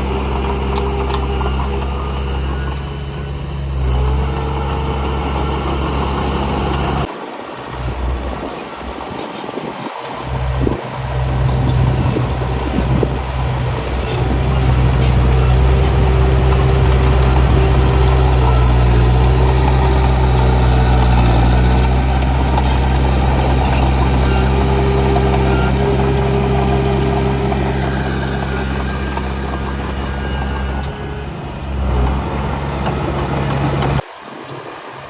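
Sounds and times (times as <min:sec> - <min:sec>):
heavy diesel engine running: 0:00.0 - 0:09.1, 0:10.2 - 0:34.2
high whine: 0:10.3 - 0:34.0.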